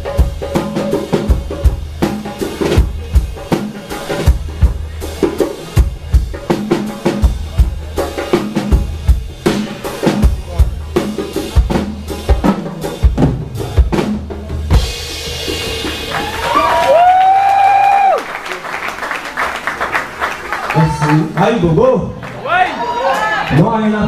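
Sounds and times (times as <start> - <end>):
drum kit groove: 0.0 - 18.2.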